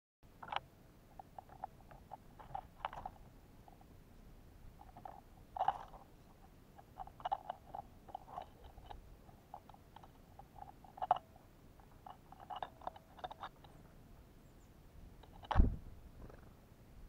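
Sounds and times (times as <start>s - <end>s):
beaks pecking and cracking seed: 4.8s - 14.0s.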